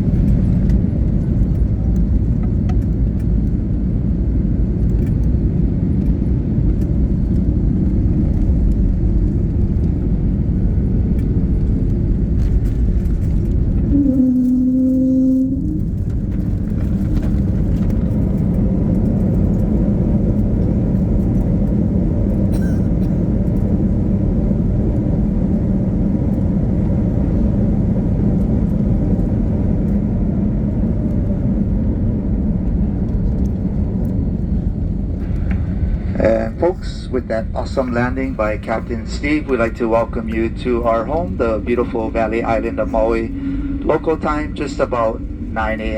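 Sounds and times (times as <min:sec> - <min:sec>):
cabin rumble of engines and airflow: 0:00.0 - 0:45.9
short low hum: 0:13.3 - 0:16.9, 0:37.6 - 0:45.9.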